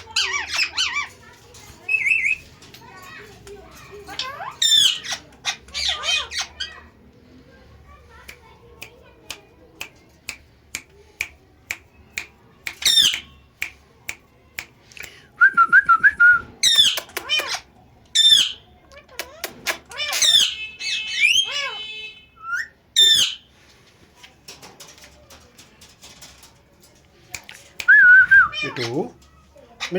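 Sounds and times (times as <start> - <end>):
parrot whistling and squawking: 20.0 - 23.4.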